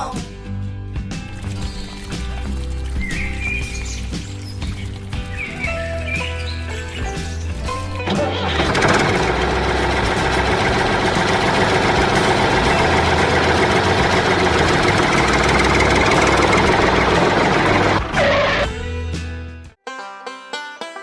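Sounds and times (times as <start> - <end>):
engine idling with low rumble: 8.4 - 18.2.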